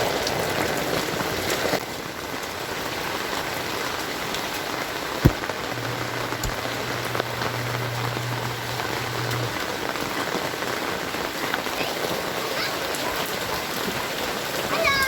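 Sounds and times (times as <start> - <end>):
heavy rain falling: 0.0 - 15.0
low steady hum: 5.3 - 9.6
low thump: 5.3 - 9.6.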